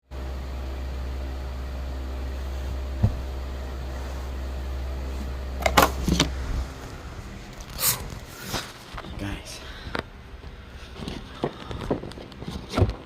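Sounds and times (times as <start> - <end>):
steady low hum: 0.0 - 13.0
short thump: 3.0 - 3.3.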